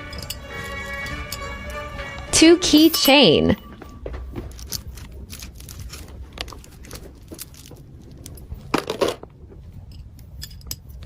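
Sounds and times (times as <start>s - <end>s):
plastic packaging rustling: 4.3s - 9.3s.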